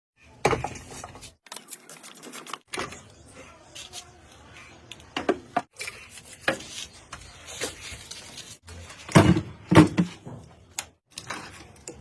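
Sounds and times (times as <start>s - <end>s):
hard objects knocking and clattering: 9.1s - 10.6s.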